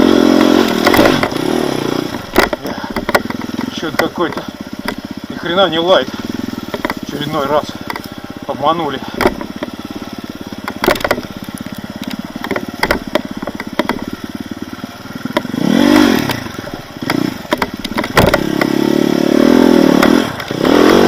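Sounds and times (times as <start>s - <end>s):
knocks and clatter from bike: 0.0s - 21.0s
motorcycle engine chugging: 0.0s - 21.0s.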